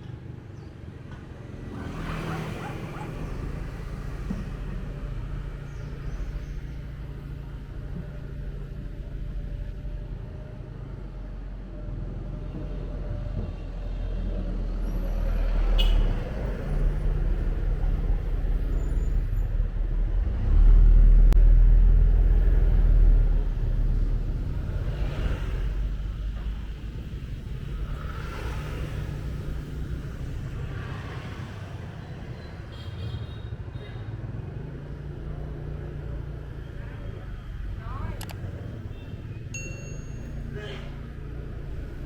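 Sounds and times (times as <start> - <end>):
road rumble: 0.0 - 42.0.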